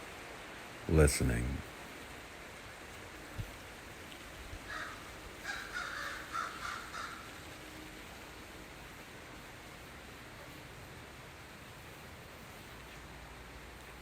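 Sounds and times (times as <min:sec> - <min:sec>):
steady low hiss: 0:00.0 - 0:14.0
bird cawing: 0:04.7 - 0:07.4.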